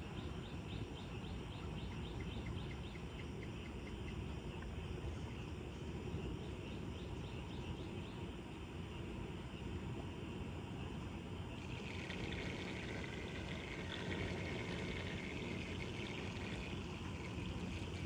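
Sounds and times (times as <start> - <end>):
rapid chirping: 0.5 - 4.3, 11.6 - 18.0
floodwater rushing into storm drain: 11.6 - 18.0.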